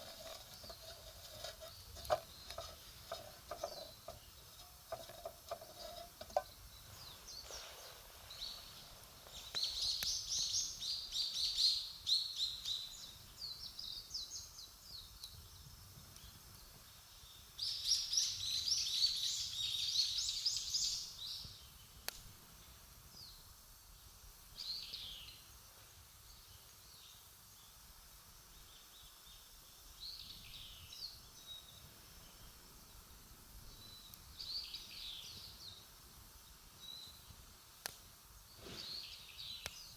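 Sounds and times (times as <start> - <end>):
campfire wood popping: 0.0 - 6.8
songbird singing: 0.0 - 27.8, 28.4 - 39.9.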